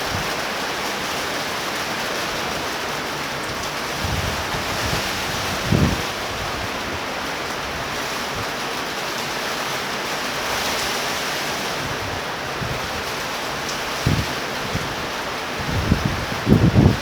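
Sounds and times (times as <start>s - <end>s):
torrential rain hissing: 0.0s - 17.0s
wind gusts buffeting microphone: 3.4s - 8.6s, 11.8s - 17.0s.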